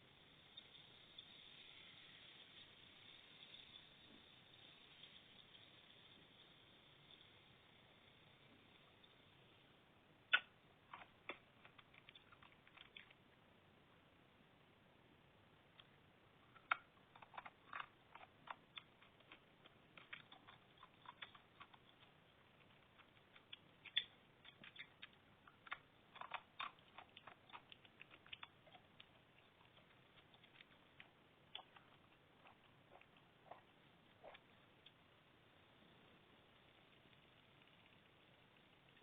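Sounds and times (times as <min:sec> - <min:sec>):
dry clay crunching while chewed: 0:10.3 - 0:13.2, 0:15.8 - 0:35.0.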